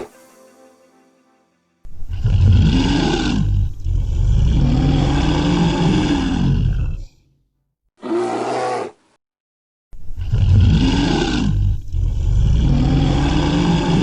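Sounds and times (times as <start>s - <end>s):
tiger roaring and growling: 2.1s - 7.2s, 8.0s - 9.0s, 10.2s - 14.0s.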